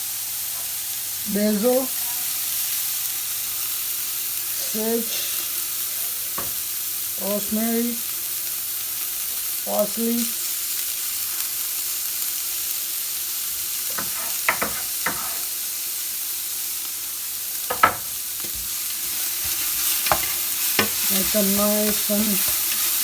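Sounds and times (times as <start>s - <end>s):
vegetables sizzling in oil: 0.0s - 23.0s
utensil knocking against pot: 14.0s - 15.3s, 17.7s - 18.6s.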